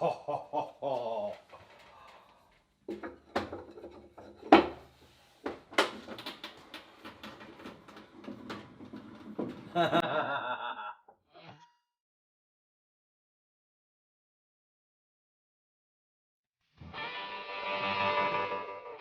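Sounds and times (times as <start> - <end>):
wooden and metal parts knocking: 2.9 - 4.9, 5.5 - 10.0.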